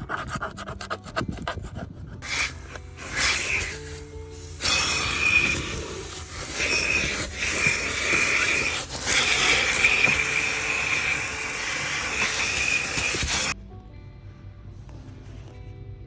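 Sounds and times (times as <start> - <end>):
vacuum cleaner running: 2.2 - 13.6.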